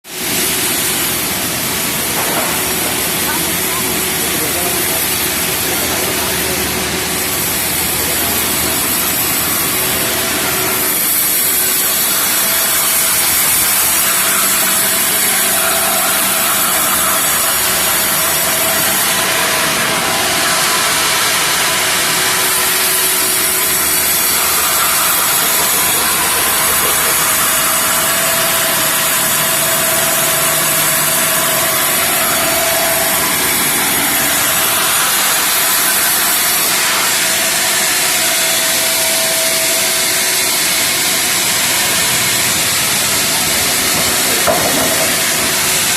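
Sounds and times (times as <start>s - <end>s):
sawmill machine running: 0.0s - 45.9s.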